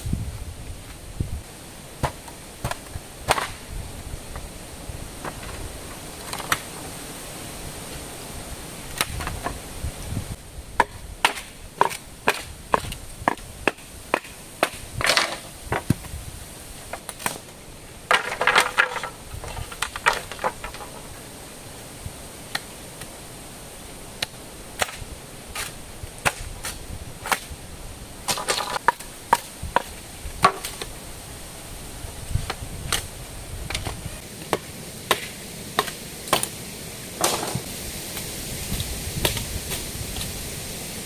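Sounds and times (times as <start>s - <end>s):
wood chopping knocks: 37.2s - 37.7s.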